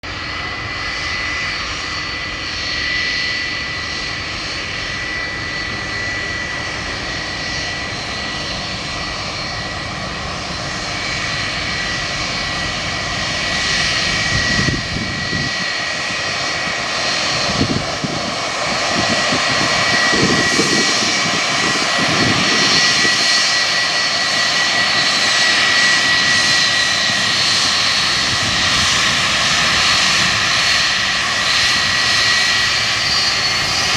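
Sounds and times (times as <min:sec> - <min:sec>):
jet engines rushing and whining: 0:00.0 - 0:33.9.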